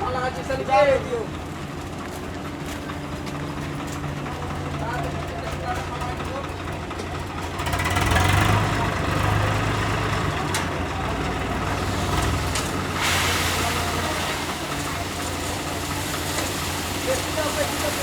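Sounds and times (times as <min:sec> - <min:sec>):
tractor diesel engine running: 0:00.0 - 0:18.0
hiss: 0:12.5 - 0:18.0.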